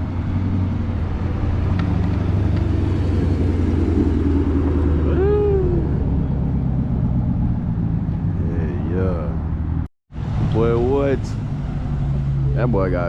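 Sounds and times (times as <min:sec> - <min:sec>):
car engines rumbling: 0:00.0 - 0:13.0
person shouting: 0:05.0 - 0:06.0.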